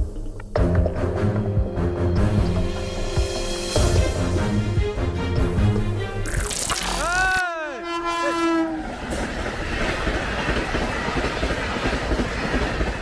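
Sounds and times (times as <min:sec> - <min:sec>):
train horn: 0:07.7 - 0:09.1
train passing with wheel clatter: 0:08.7 - 0:13.0.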